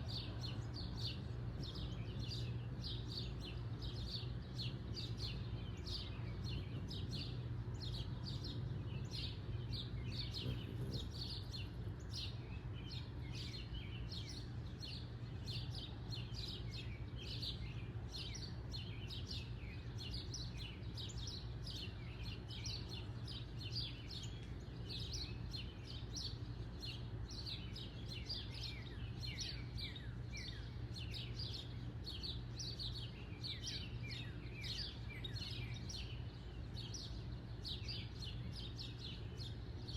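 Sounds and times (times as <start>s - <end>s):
small birds chirping: 0.0s - 39.9s
steady low hum: 0.0s - 39.9s.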